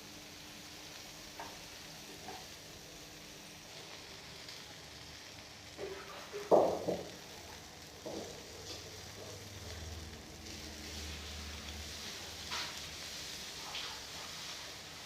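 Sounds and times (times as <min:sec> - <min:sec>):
faint sizzling in a pan: 0:00.0 - 0:15.0
knocks against a pan: 0:05.8 - 0:07.1.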